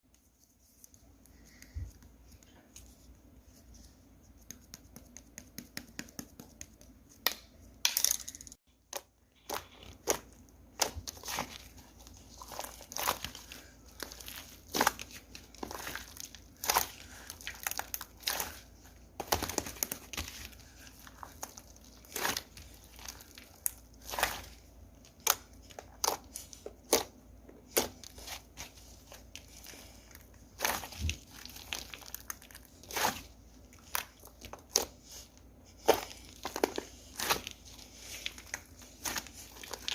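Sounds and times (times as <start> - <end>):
slime popping and crackling: 29.1 - 34.9.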